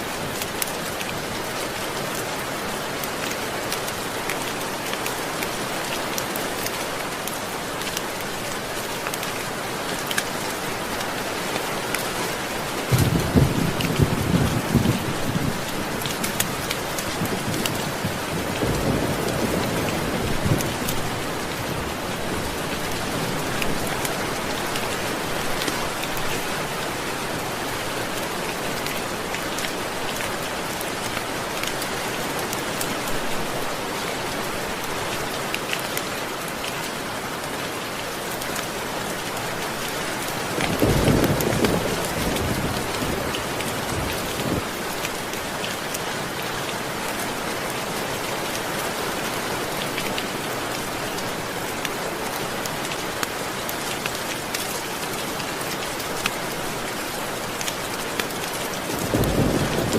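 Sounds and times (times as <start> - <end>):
steady rain falling: 0.0 - 59.9
low rolling thunder: 59.0 - 59.9.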